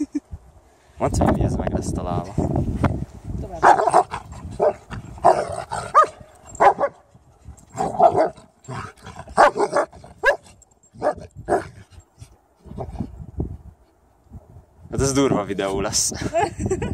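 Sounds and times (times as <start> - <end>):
dogs barking and yipping: 3.6 - 12.0.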